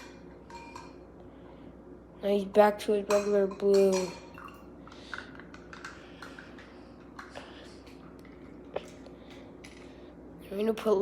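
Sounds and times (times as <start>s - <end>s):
toy cars clicking against cups: 3.1s - 8.0s.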